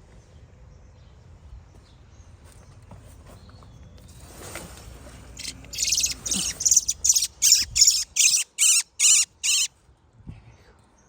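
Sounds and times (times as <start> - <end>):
bird calling shrill notes: 5.4 - 9.7.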